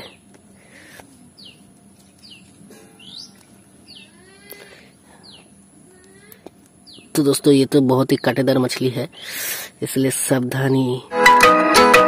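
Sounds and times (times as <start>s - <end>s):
high falling bird chirps: 1.4s - 5.5s.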